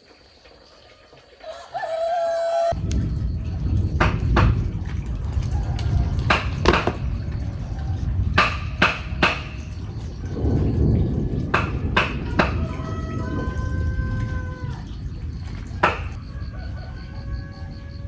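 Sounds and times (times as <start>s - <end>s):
steady low rumble: 2.7s - 18.0s
sharp knocks: 4.0s - 5.0s, 6.3s - 7.1s, 8.4s - 9.8s, 11.5s - 12.8s, 15.8s - 16.2s.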